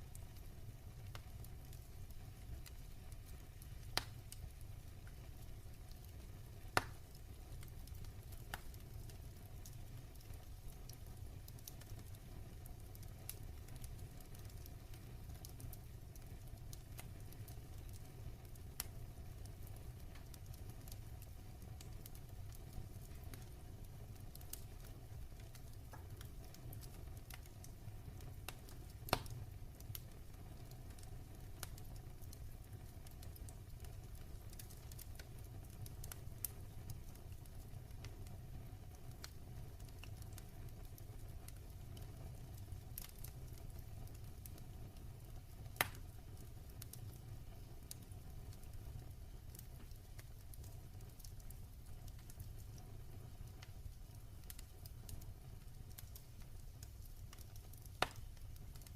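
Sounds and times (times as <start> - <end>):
faint fire crackles: 0.0 - 58.9
sharp fire pops: 3.8 - 5.2, 6.7 - 9.1, 28.5 - 30.1, 45.7 - 46.1, 56.8 - 58.9.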